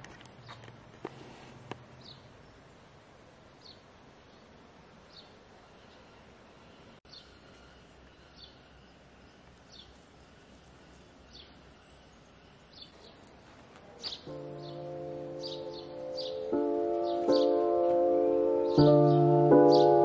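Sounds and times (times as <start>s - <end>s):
faint outdoor background noise: 0.0s - 20.0s
bird chirping: 2.0s - 2.8s, 3.6s - 20.0s
music: 14.3s - 20.0s.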